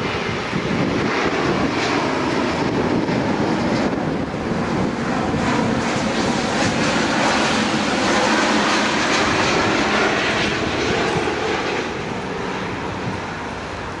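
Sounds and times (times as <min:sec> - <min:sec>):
jet airliner roar: 0:00.0 - 0:14.0.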